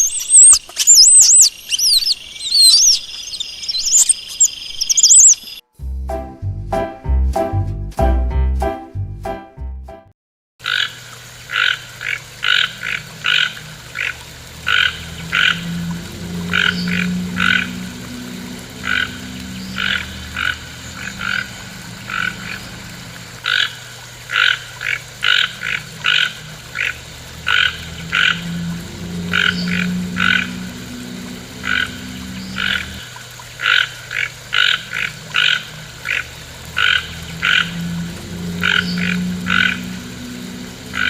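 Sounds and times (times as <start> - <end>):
frogs calling: 0.0 - 5.6, 10.6 - 41.0
faint low drone: 5.8 - 10.0, 14.6 - 23.4, 27.2 - 33.0, 36.7 - 41.0
music: 5.8 - 10.2.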